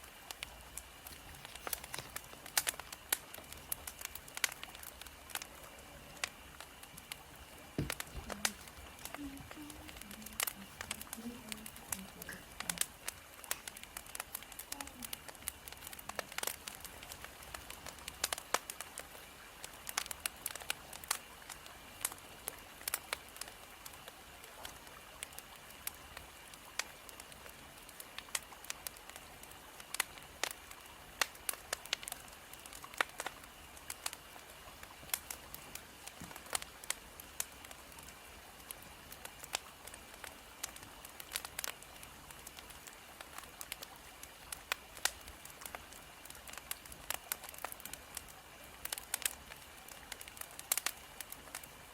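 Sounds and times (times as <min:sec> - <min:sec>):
firewood crackling and popping: 0:00.0 - 0:51.9
soft steady hiss of fire: 0:00.0 - 0:51.9.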